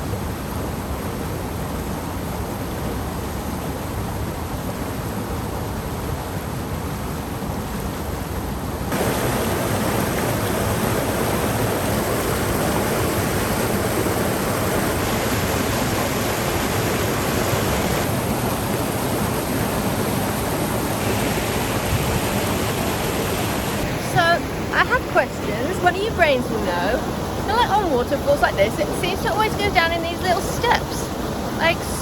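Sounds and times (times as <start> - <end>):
waterfall rushing over rocks: 8.9 - 32.0.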